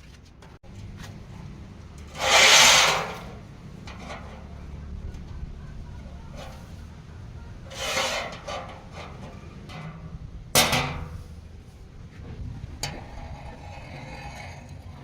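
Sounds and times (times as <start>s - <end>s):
scraping noise: 2.0s - 4.6s, 7.6s - 10.1s, 12.1s - 15.0s.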